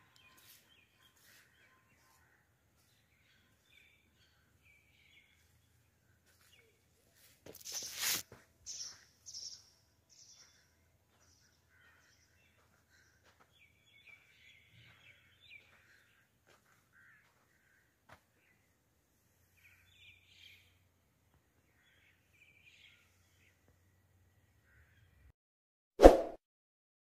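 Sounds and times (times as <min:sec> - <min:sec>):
faint bird chirps: 0:00.0 - 0:18.6.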